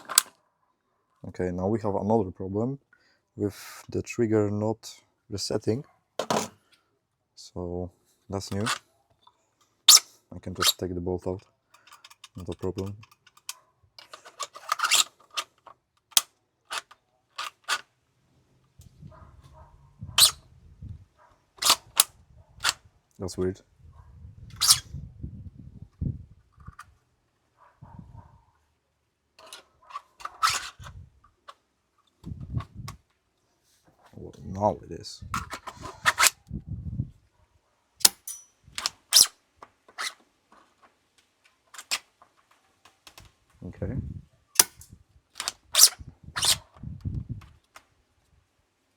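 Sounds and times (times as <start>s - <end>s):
airsoft rifle bolt clicking: 0.0s - 0.4s, 15.4s - 17.8s, 44.6s - 46.6s.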